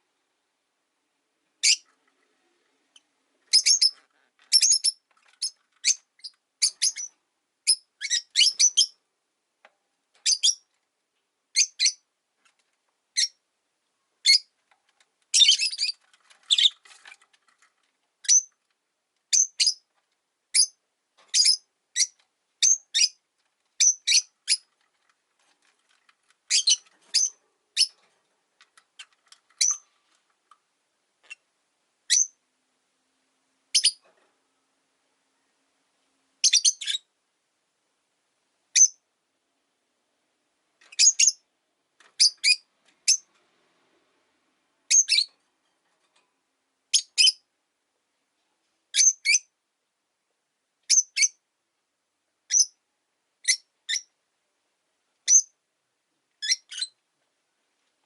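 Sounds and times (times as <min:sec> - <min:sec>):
lovebirds chirping: 0:01.6 - 0:01.9, 0:02.9 - 0:09.0, 0:10.2 - 0:10.7, 0:11.5 - 0:12.1, 0:14.2 - 0:14.6, 0:15.3 - 0:17.2, 0:18.2 - 0:18.6, 0:19.3 - 0:19.9, 0:20.5 - 0:23.2, 0:23.8 - 0:25.0, 0:25.9 - 0:28.0, 0:28.8 - 0:30.0, 0:32.1 - 0:32.4, 0:33.7 - 0:34.0, 0:36.4 - 0:37.1, 0:38.7 - 0:39.0, 0:40.9 - 0:41.5, 0:42.2 - 0:43.3, 0:44.9 - 0:45.4, 0:46.9 - 0:47.5, 0:48.9 - 0:49.5, 0:50.9 - 0:51.4, 0:52.5 - 0:52.8, 0:53.4 - 0:54.1, 0:55.2 - 0:55.6, 0:56.4 - 0:57.0.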